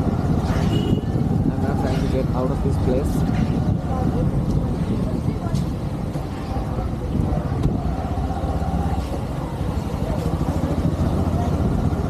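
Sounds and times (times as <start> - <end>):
motorcycle engine running: 5.8 - 12.0.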